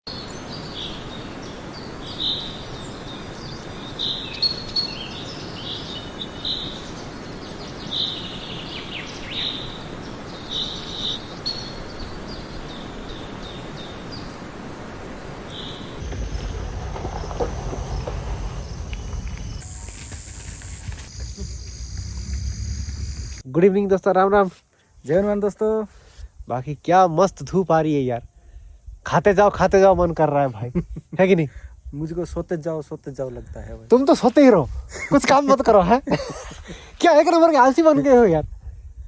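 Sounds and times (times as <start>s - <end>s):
birds chirping: 15.5s - 23.4s
low rumble: 16.0s - 23.4s.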